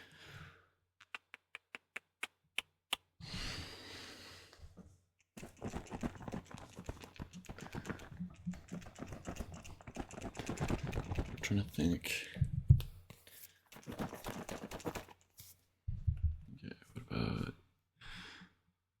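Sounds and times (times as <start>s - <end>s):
typing on computer keyboard: 5.4s - 11.6s, 13.8s - 15.2s.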